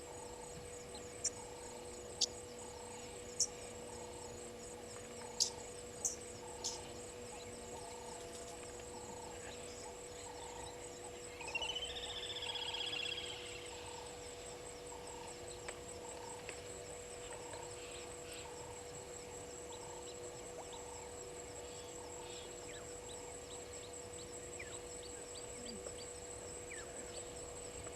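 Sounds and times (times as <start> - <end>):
high insect drone: 0.0 - 27.9.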